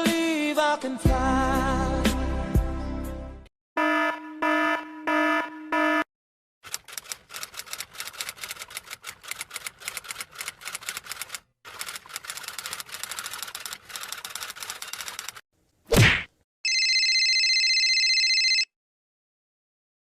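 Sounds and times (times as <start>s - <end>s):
typewriter keys clattering: 6.6s - 15.4s.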